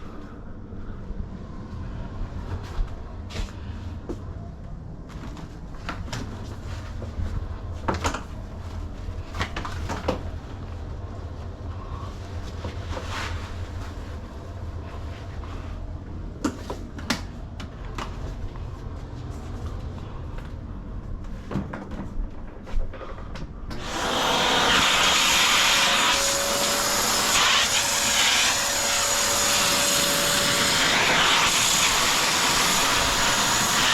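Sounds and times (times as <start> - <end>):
vacuum cleaner running: 23.7 - 33.9.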